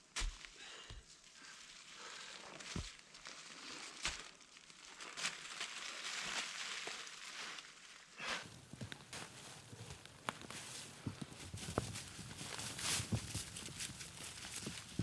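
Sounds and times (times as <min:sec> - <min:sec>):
rustling and crunching handling: 0:08.4 - 0:15.0.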